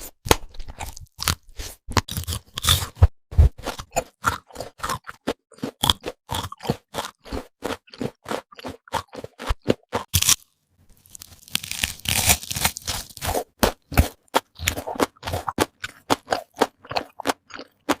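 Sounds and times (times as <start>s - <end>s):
crunching fried chicken: 3.8s - 18.0s.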